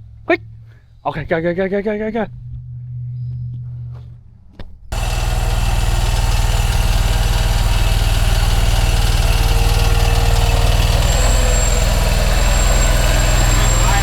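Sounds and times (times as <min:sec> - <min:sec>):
earthmoving machine engine running: 0:04.9 - 0:14.0.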